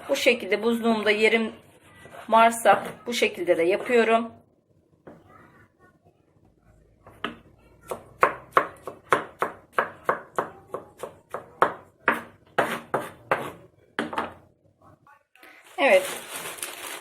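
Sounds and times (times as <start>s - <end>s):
knife chopping tomatoes: 7.1s - 14.4s.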